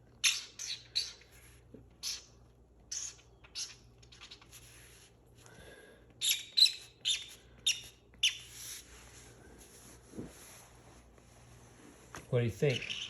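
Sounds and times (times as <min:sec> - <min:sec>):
marker squeaking on paper: 0:00.1 - 0:05.2, 0:06.2 - 0:08.9, 0:12.6 - 0:13.0
faint scratching: 0:04.1 - 0:05.4.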